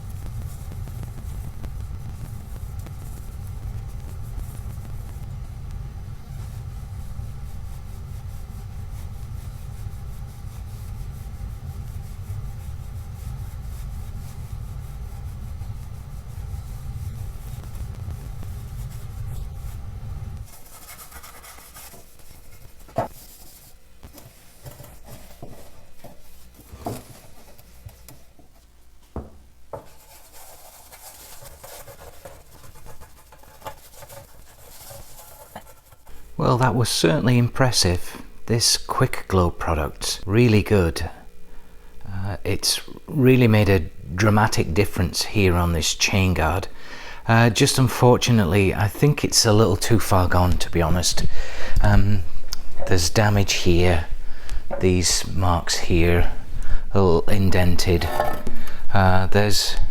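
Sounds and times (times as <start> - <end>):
steady low rumble: 0.0 - 20.6, 36.2 - 59.9
cloth rubbing on metal: 0.0 - 27.9, 29.8 - 37.7, 51.9 - 58.5.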